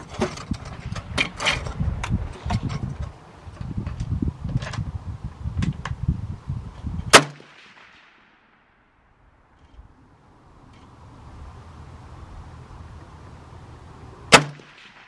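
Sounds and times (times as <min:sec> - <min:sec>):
loud rifle shot: 0:07.1 - 0:08.8, 0:14.3 - 0:15.0.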